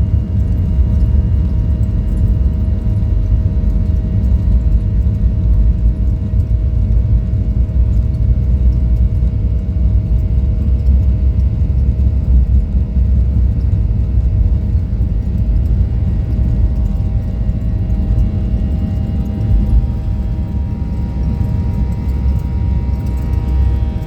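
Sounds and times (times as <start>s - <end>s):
airplane cabin engine rumble: 0.0s - 24.0s
constant hum: 0.0s - 24.0s.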